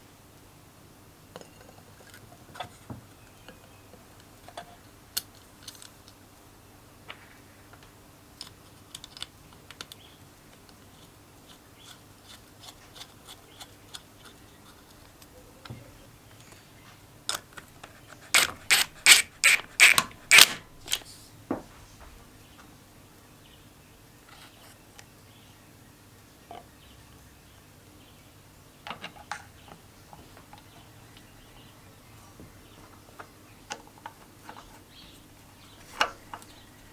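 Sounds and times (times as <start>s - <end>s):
hand tools clicking and tapping: 17.3s - 21.0s.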